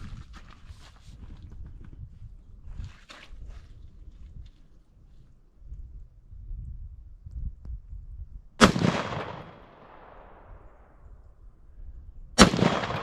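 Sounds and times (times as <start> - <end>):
rifle shots with echo: 8.6 - 11.0, 12.4 - 13.0.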